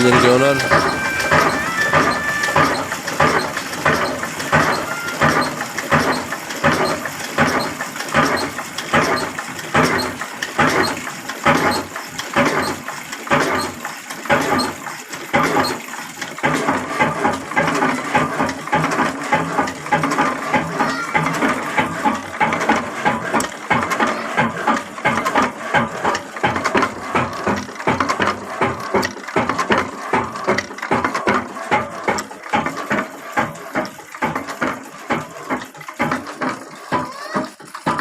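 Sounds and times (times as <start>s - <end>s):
diesel engine running: 0.0s - 7.1s.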